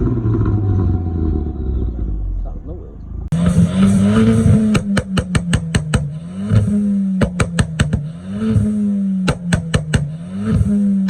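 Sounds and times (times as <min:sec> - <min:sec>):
car engine revving: 0:00.0 - 0:11.0
exhaust pops and crackles: 0:03.3 - 0:11.0.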